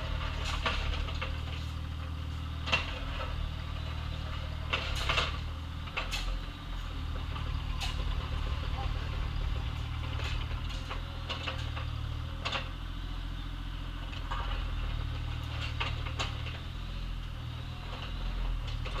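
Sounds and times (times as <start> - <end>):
bucket clanking and scraping in gravel: 0.0 - 1.8
excavator engine running: 0.0 - 19.0.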